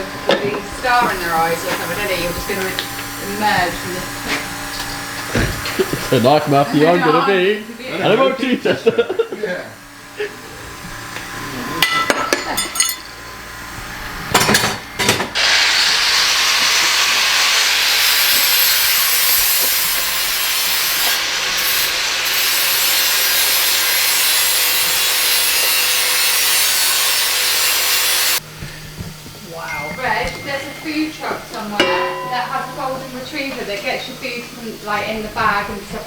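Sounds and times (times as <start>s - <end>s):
power tool cutting sheet steel: 0.7s - 8.2s, 13.9s - 28.4s.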